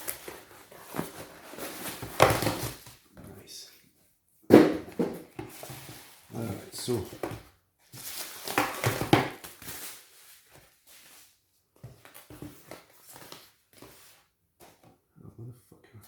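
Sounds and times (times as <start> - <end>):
packaging rustling: 8.0 - 11.2.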